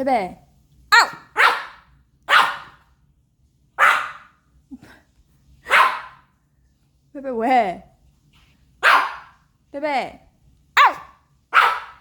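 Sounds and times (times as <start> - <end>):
puppy barking: 1.0 - 2.8, 3.8 - 4.4, 5.6 - 6.3, 8.8 - 9.4, 10.8 - 12.0.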